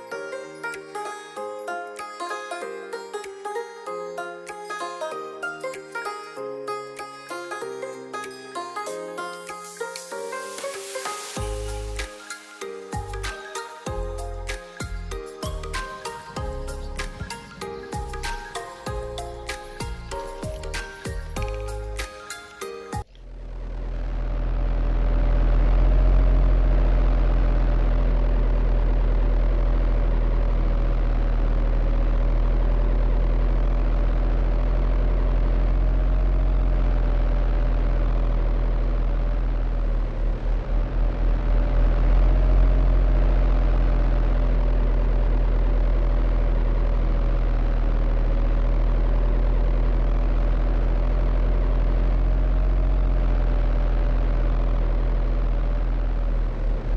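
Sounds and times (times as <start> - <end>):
diesel engine idling: 13.9 - 22.0, 23.0 - 56.9.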